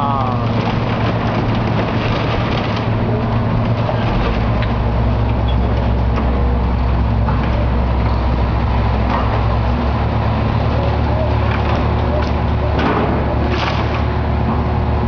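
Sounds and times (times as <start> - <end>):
heavy machinery engine drone: 0.0 - 15.0
faint knocks and crunches: 0.4 - 6.6.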